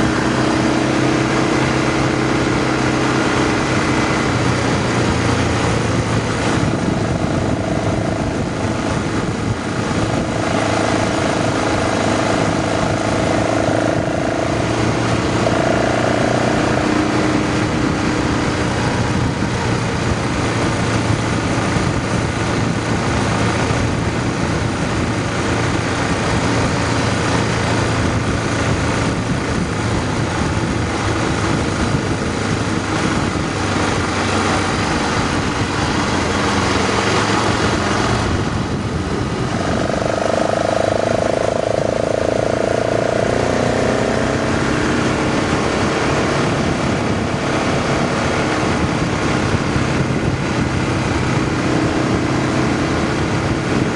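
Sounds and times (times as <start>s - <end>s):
constant rushing noise: 0.0s - 53.9s
motorcycle engine hum: 0.0s - 53.9s.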